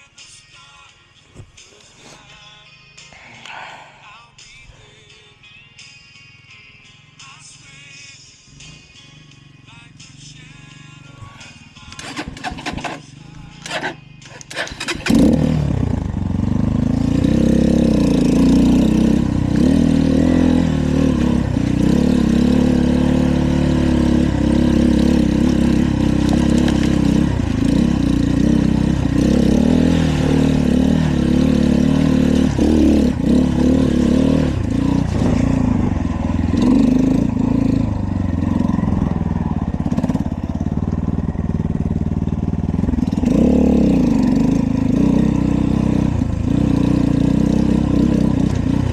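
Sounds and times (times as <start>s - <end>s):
dirt bike engine revving: 12.0s - 48.9s.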